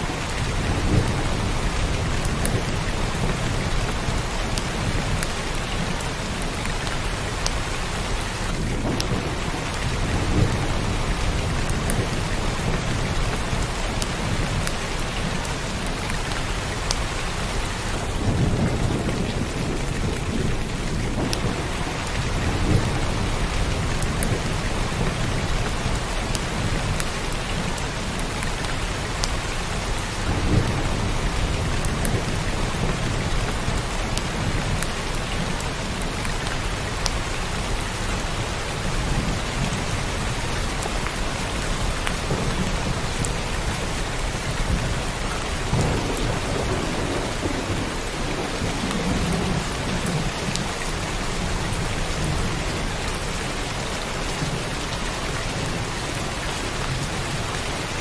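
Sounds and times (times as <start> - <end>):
heavy rain pouring: 0.0 - 58.0
thunder rumbling: 8.5 - 14.6, 17.7 - 27.0, 29.9 - 36.2, 38.9 - 53.4.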